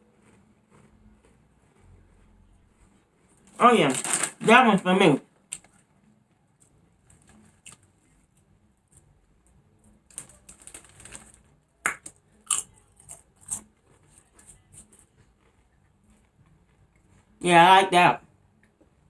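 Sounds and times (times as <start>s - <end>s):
potato chips crunching: 3.5s - 5.6s, 10.1s - 15.0s.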